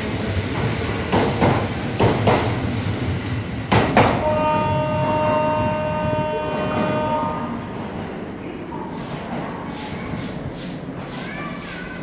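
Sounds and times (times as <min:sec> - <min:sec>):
train wheels clacking over rail joints: 0:00.6 - 0:02.6, 0:03.7 - 0:04.3.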